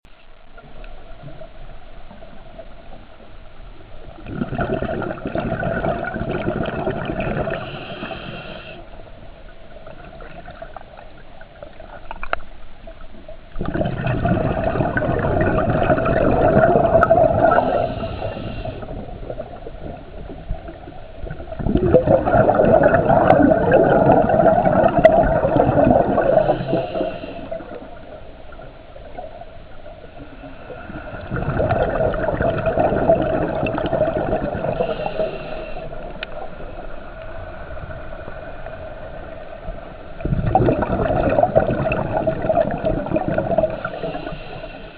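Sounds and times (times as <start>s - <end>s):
regulator exhalation bubbling: 4.2s - 8.8s, 13.6s - 20.1s, 21.5s - 27.9s, 31.2s - 36.2s, 40.2s - 44.7s
diver inhaling through regulator: 7.2s - 9.0s, 17.3s - 19.3s, 26.0s - 28.0s, 34.3s - 36.5s, 43.6s - 44.9s.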